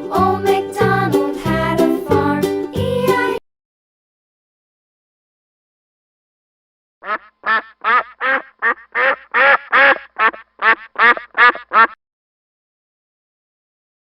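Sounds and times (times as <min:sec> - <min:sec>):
duck quacking: 0:07.0 - 0:12.0.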